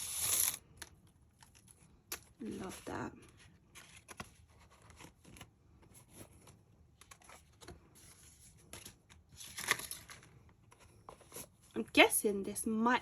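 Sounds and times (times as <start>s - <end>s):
paper packaging rustling: 2.4s - 11.6s.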